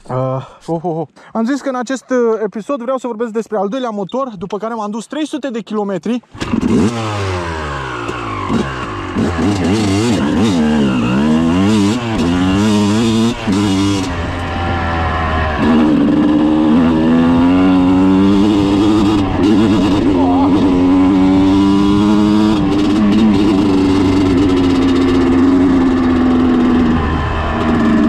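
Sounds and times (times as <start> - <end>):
dirt bike engine revving: 6.3 - 28.0.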